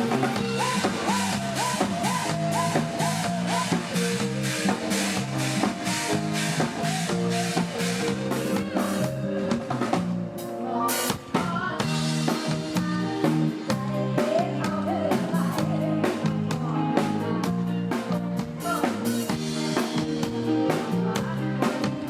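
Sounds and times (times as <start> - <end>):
drum-kit beat: 0.0 - 10.4
live band music: 0.0 - 22.0.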